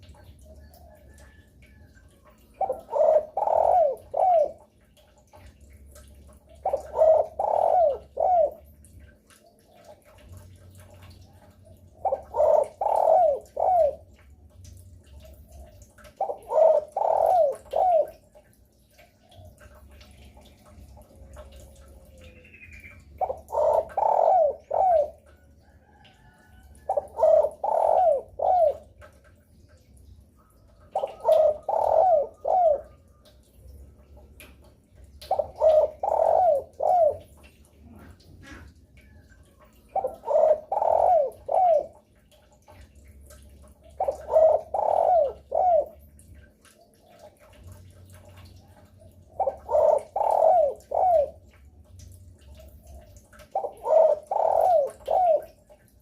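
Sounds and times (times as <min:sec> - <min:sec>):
dove cooing: 0:00.1 - 0:04.8, 0:06.3 - 0:09.1, 0:11.0 - 0:14.2, 0:15.2 - 0:18.5, 0:19.1 - 0:29.1, 0:30.8 - 0:33.1, 0:35.3 - 0:38.8, 0:39.5 - 0:42.1, 0:43.9 - 0:51.6, 0:52.5 - 0:56.0.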